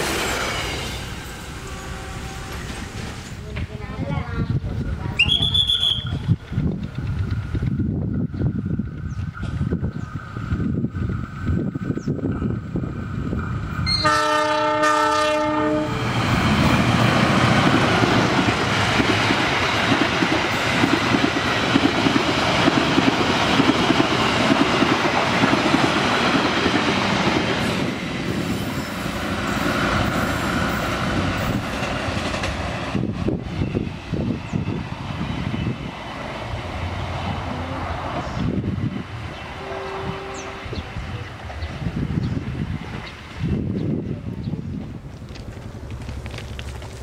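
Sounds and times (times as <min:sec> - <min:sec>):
multi-tone train horn: 0:01.6 - 0:03.1, 0:13.8 - 0:16.1, 0:39.6 - 0:40.9.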